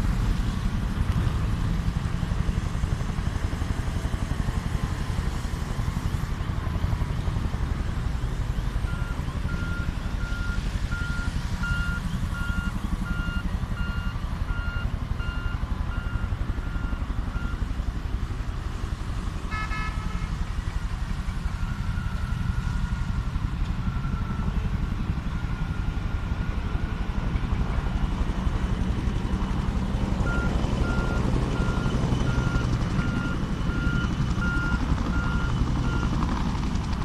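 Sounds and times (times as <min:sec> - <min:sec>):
reversing alarm beeping: 0:08.8 - 0:17.7, 0:21.5 - 0:26.5, 0:30.2 - 0:36.2.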